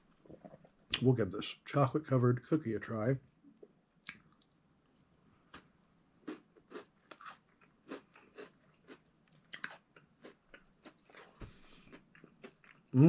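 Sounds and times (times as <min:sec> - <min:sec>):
chewing crunchy cookie: 0:05.5 - 0:13.0.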